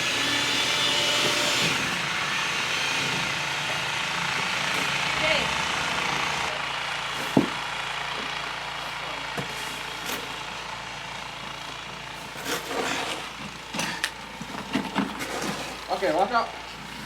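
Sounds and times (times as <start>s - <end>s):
snowblower engine running: 0.0s - 17.0s
knocks and scrapes: 12.2s - 16.2s.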